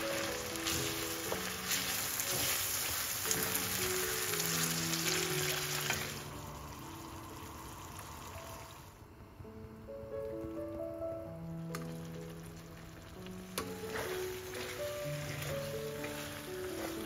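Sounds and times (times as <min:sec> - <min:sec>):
wooden spatula scraping pan: 0:00.0 - 0:03.6, 0:13.6 - 0:17.0
food sizzling in frying pan: 0:00.0 - 0:09.0, 0:11.8 - 0:17.0.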